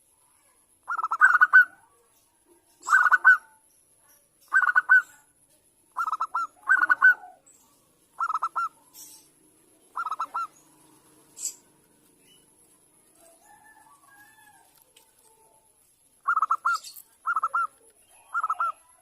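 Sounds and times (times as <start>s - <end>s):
dove cooing: 0.8s - 2.0s, 2.8s - 3.6s, 4.5s - 5.2s, 6.0s - 7.5s, 8.2s - 11.8s, 16.2s - 19.0s
high bird chirp: 0.8s - 5.3s, 5.9s - 12.7s, 16.2s - 19.0s.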